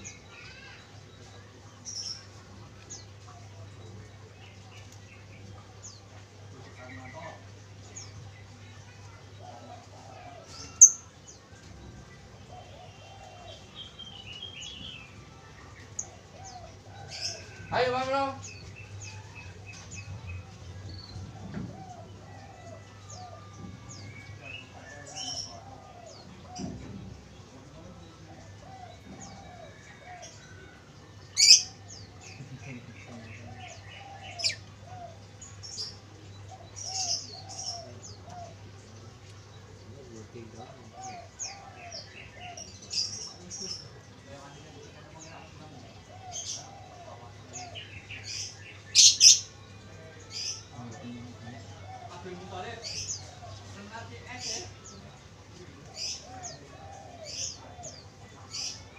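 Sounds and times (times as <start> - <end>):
small birds chirping: 0.0 - 58.9
dove cooing faintly: 1.4 - 17.8, 18.4 - 58.9
dove cooing: 40.6 - 43.4, 45.6 - 49.4, 55.8 - 58.9.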